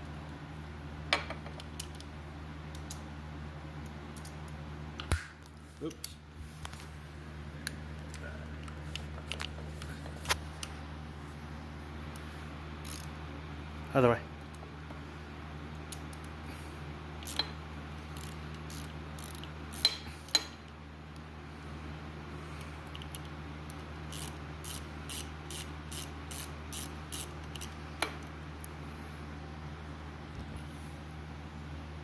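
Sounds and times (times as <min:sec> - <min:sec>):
steady low hum: 0:00.0 - 0:32.0
socket ratchet clicking: 0:12.8 - 0:13.1, 0:18.1 - 0:20.4, 0:24.1 - 0:27.8.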